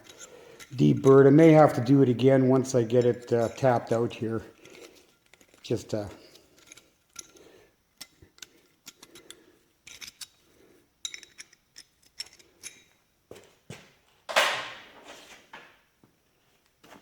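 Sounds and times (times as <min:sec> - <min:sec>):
steel parts and tools clinking: 0:00.0 - 0:13.1.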